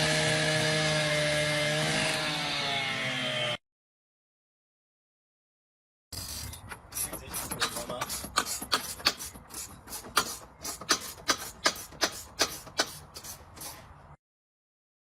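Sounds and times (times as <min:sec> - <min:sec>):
rasping strokes: 0:06.2 - 0:14.0.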